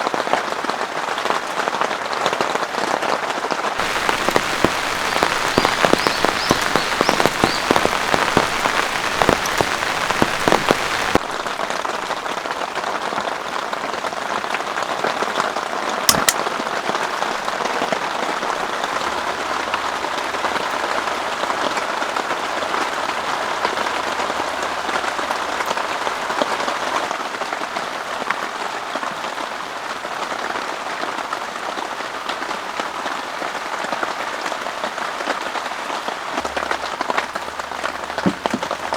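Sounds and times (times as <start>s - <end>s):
heavy rain falling: 3.8s - 29.6s, 32.3s - 38.9s
sharp tap: 16.1s - 16.4s.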